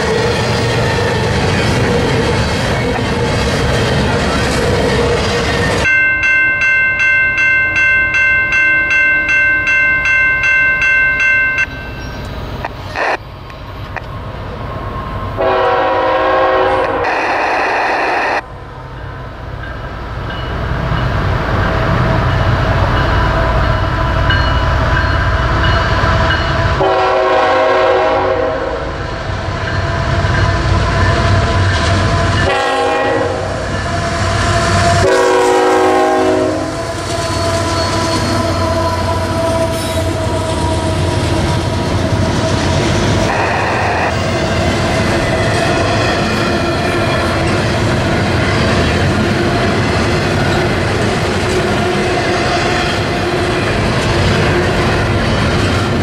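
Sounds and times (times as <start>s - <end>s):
freight cars rumbling: 0.0s - 15.4s, 36.5s - 56.0s
crossing bell ringing: 5.5s - 13.8s, 18.9s - 27.0s
locomotive air horn blasts: 15.4s - 18.4s, 26.8s - 29.0s, 32.4s - 33.7s, 34.9s - 41.2s, 43.3s - 44.1s.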